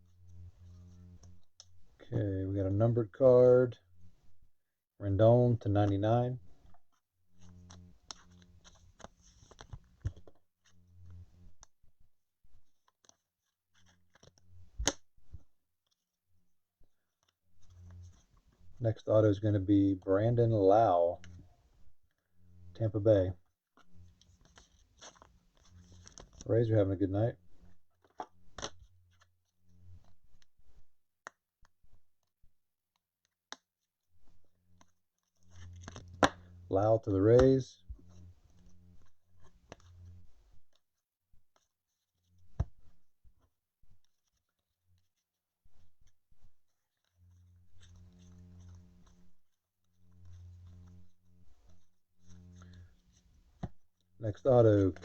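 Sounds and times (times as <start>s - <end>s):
cards clicking and rustling: 24.3s - 26.4s, 35.6s - 36.5s
faint low hum: 41.4s - 55.0s.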